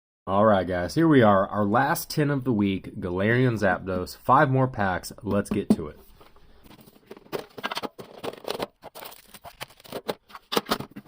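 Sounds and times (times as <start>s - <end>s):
packaging crinkling and rustling: 6.6s - 11.0s.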